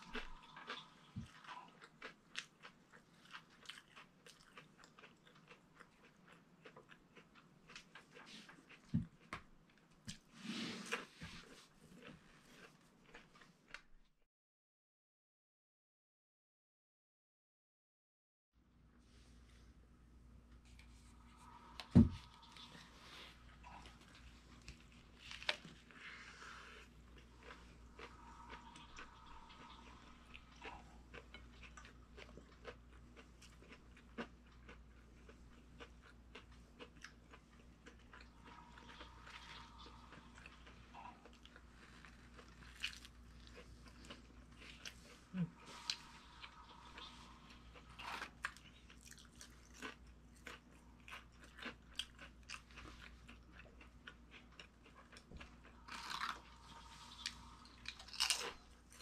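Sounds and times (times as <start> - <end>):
chewing and biting sandwich: 0.0 - 13.9, 20.7 - 59.0.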